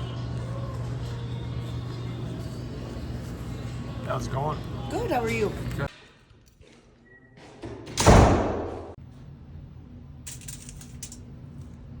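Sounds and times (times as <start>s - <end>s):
door slamming: 7.8s - 9.0s.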